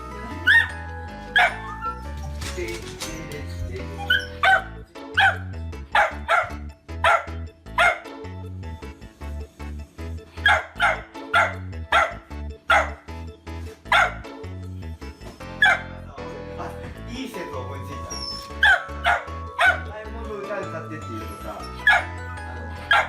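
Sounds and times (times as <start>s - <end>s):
background music: 0.0s - 23.0s
dog barking: 0.4s - 1.7s, 4.0s - 8.2s, 10.4s - 13.1s, 13.8s - 14.4s, 15.6s - 16.0s, 18.6s - 19.9s, 21.8s - 22.2s.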